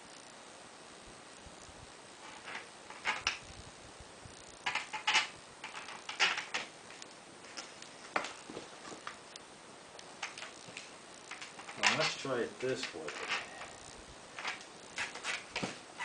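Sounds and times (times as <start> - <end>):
metal screws clicking and clinking: 2.2 - 3.4, 4.6 - 6.7, 11.3 - 12.2, 12.8 - 15.6.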